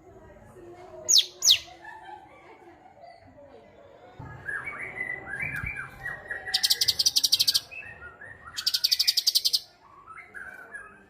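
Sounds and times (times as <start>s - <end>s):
songbird trilling: 1.1s - 1.7s, 6.4s - 7.8s, 8.6s - 9.7s.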